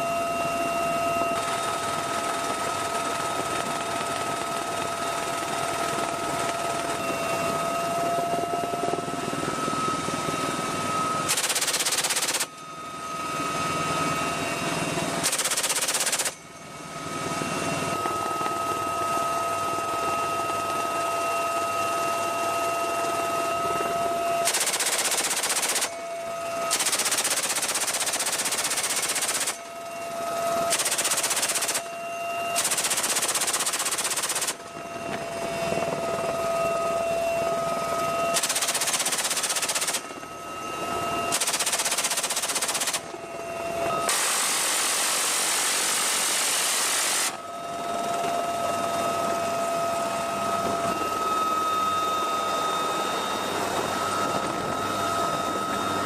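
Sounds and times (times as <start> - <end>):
helicopter whine: 0.0 - 56.0
machine gun bursts: 11.3 - 12.5, 15.2 - 16.4, 24.5 - 25.9, 26.7 - 29.6, 30.7 - 31.9, 32.6 - 34.6, 38.4 - 40.0, 41.3 - 43.0.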